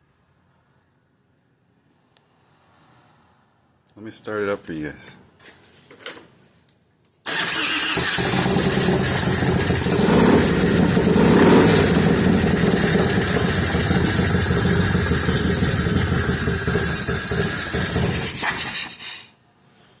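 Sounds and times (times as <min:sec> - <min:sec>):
motorcycle engine running: 0:08.0 - 0:18.8.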